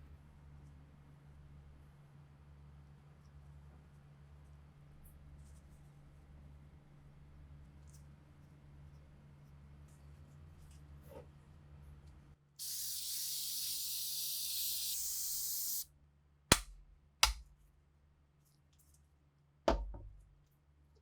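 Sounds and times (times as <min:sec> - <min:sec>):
pressurised spray hissing: 0:12.6 - 0:15.8.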